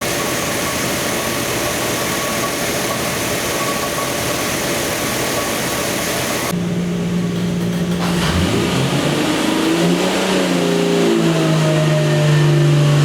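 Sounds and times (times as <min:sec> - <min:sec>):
engine idling with hiss: 0:00.0 - 0:08.2.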